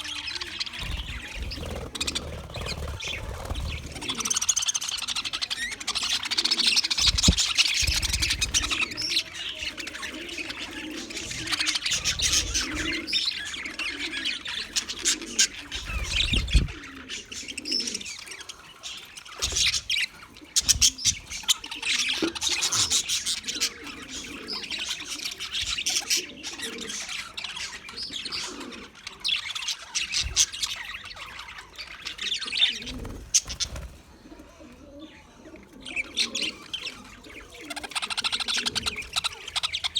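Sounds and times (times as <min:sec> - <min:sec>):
budgerigar chattering and warbling: 0:00.1 - 0:18.4, 0:35.9 - 0:39.9.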